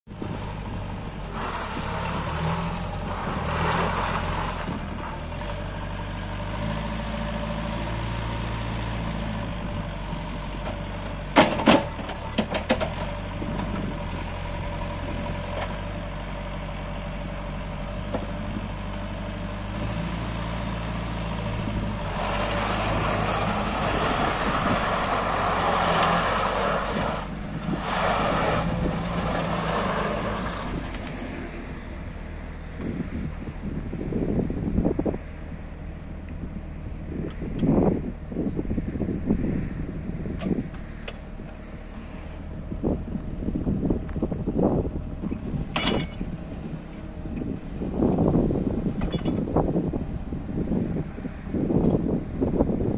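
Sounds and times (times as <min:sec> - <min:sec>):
diesel engine running: 0:00.1 - 0:52.9
sharp metallic clanks: 0:45.7 - 0:46.3.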